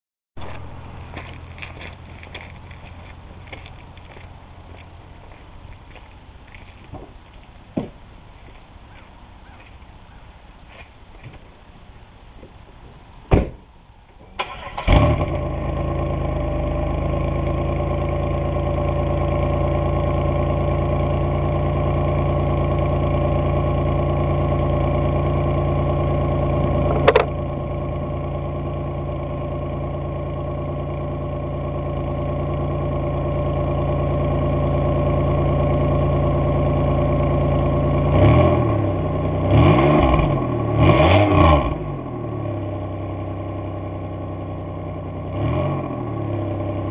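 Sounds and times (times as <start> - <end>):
car engine starting and idling: 0.4 - 10.2, 12.1 - 46.9
engine revving blips: 26.9 - 27.3, 38.1 - 42.0.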